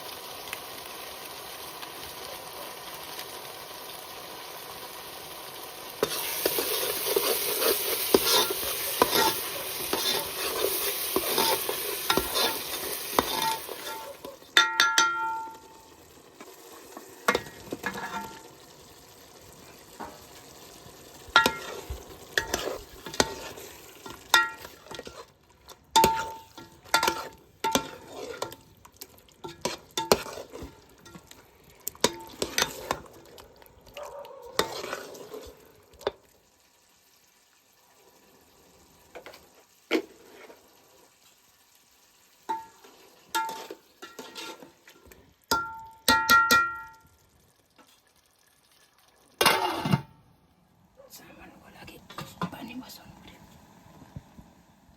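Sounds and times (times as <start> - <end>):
food sizzling in a pot: 0.0 - 54.9
spoon scraping a pan: 5.9 - 18.6, 19.6 - 33.4, 34.4 - 36.2, 39.2 - 40.7, 42.5 - 47.0, 49.4 - 50.1.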